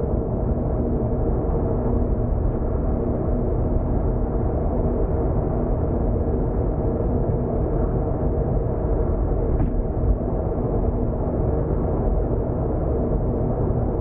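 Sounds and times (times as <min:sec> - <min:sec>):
car road and engine rumble: 0:08.9 - 0:11.2.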